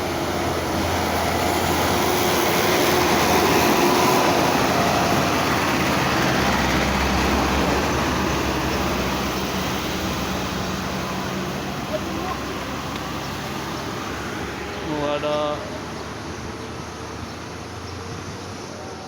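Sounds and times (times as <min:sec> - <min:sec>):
truck engine running under load: 0:00.0 - 0:18.7
heavy road noise: 0:00.0 - 0:19.0
low steady engine hum: 0:00.0 - 0:19.0.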